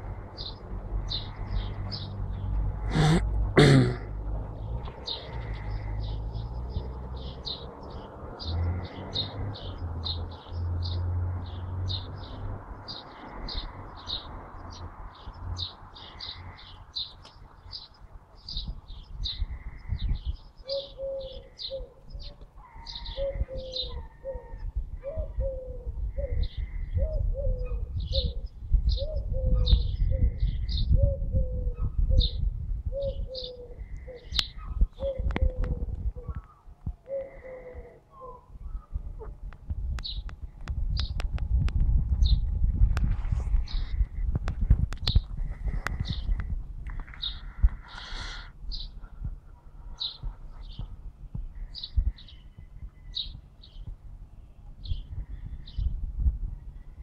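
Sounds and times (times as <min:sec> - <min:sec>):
low rumble: 0:38.6 - 0:57.0.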